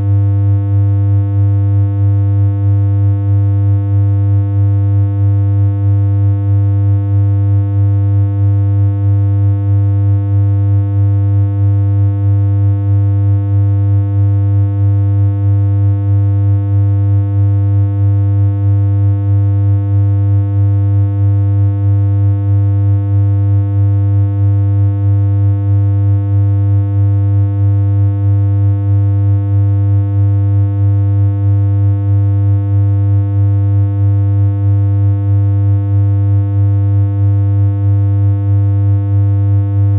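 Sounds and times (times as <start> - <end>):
low buzzy electronic hum: 0.0 - 3.3.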